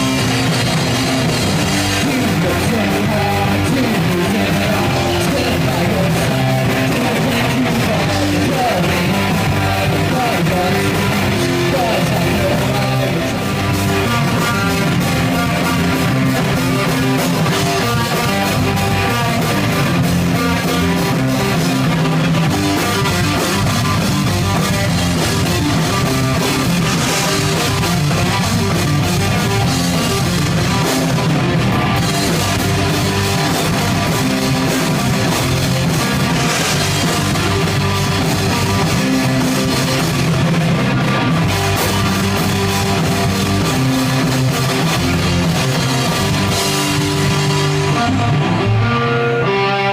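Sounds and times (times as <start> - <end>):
drum kit playing: 0.0 - 49.9
electric guitars: 0.0 - 49.9.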